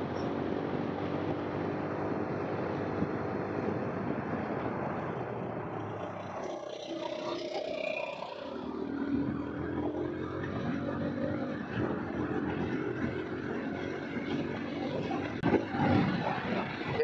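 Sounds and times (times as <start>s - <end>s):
continuous rushing noise: 11.3s - 17.0s.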